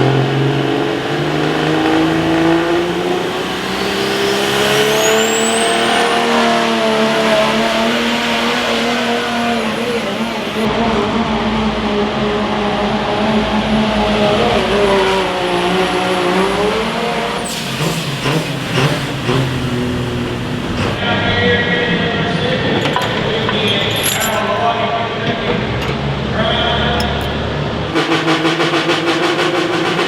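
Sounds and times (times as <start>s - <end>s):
engine running at full throttle: 0.0s - 21.0s, 27.8s - 30.0s.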